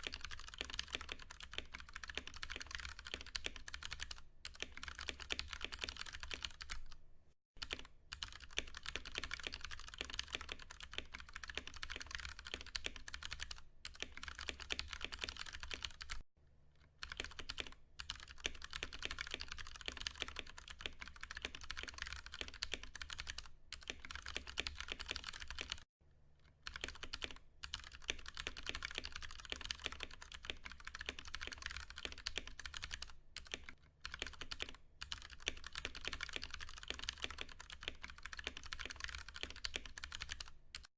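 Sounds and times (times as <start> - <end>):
mechanical keyboard typing: 0.0 - 7.0, 7.6 - 16.2, 17.0 - 25.9, 26.6 - 40.9.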